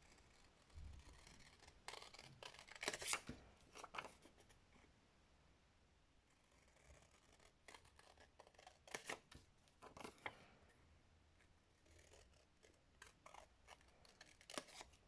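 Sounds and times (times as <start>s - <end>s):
scissors snipping paper: 1.0s - 4.0s, 13.0s - 15.0s.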